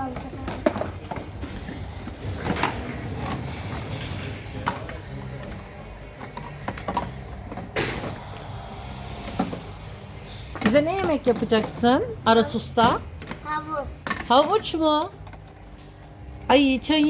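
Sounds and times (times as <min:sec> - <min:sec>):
steady low hum: 0:01.1 - 0:17.0.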